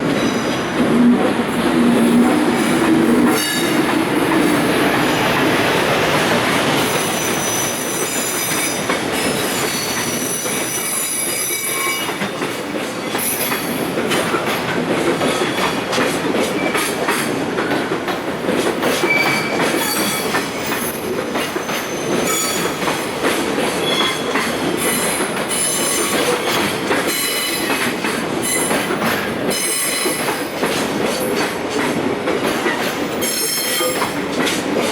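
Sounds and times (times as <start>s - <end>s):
train wheels rumbling on rails: 0.0s - 34.9s
wheel and brake squeals: 6.9s - 12.2s, 19.0s - 21.0s, 21.6s - 22.8s, 23.8s - 27.7s, 33.2s - 34.1s.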